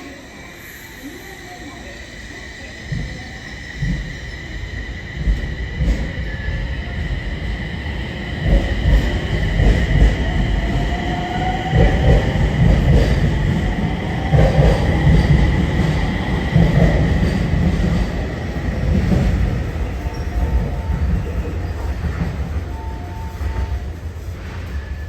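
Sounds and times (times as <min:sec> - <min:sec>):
steady high tone: 0:00.0 - 0:12.7
train rumble: 0:00.0 - 0:25.0.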